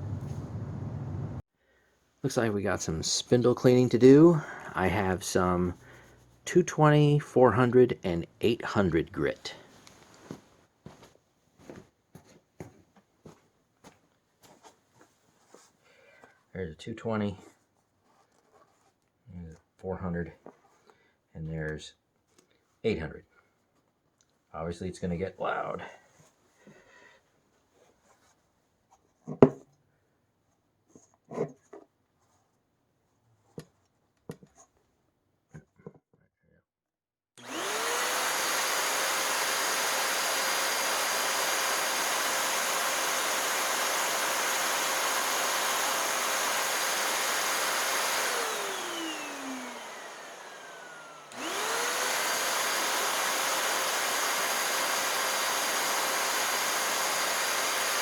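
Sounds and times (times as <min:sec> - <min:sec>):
vacuum motor high whine: 0:00.0 - 0:01.4, 0:37.4 - 0:58.0.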